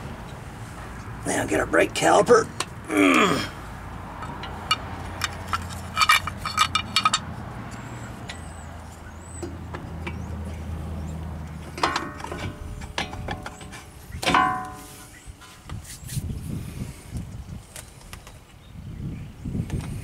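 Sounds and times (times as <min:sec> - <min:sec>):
metal clinks and clanks: 0:04.2 - 0:10.3, 0:11.6 - 0:15.6.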